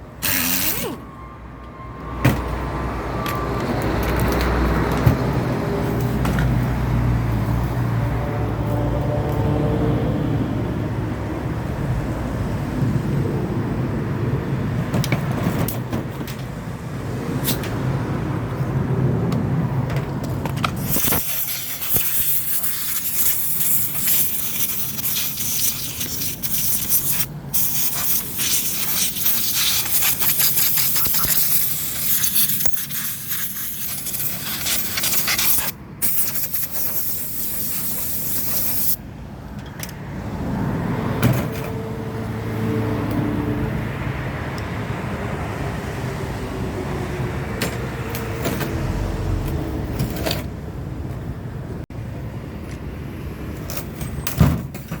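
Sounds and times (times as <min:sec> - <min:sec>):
loud spray-like hiss: 0:20.8 - 0:39.0.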